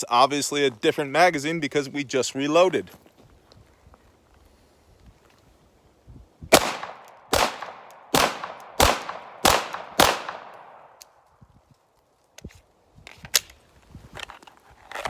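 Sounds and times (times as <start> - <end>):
pistol shots with echo: 6.5 - 11.0.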